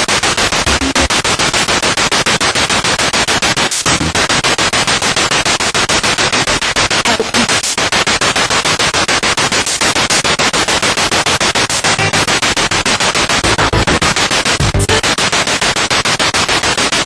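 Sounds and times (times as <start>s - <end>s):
radio static in short bursts: 3.5s - 17.0s.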